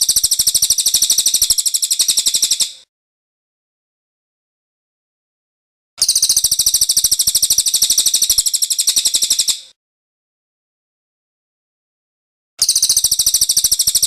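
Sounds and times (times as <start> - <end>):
bird's high-pitched trill: 0.0 - 2.8, 6.0 - 9.7, 12.6 - 14.0.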